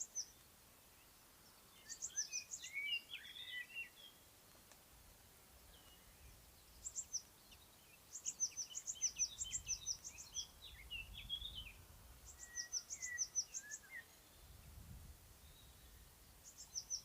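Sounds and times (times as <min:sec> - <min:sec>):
lower whistled bird notes: 0:01.7 - 0:04.2, 0:05.7 - 0:14.7.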